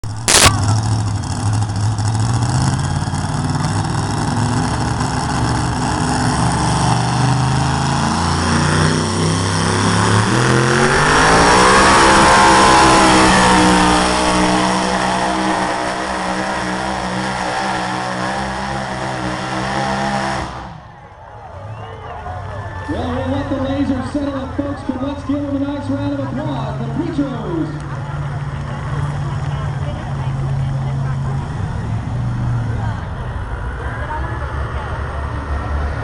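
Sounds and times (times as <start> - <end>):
vehicle engine revving under load: 0.0 - 21.0.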